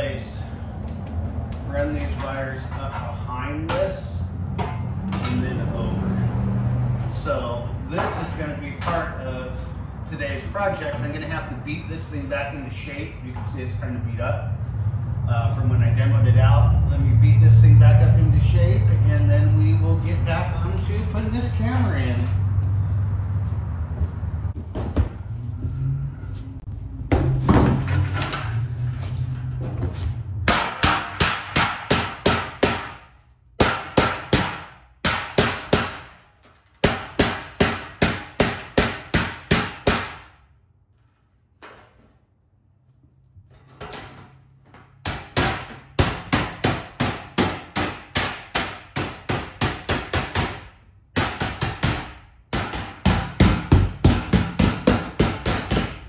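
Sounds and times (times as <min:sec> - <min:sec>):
hammer striking sheet metal: 0:30.4 - 0:36.2, 0:36.8 - 0:40.4, 0:45.0 - 0:56.0.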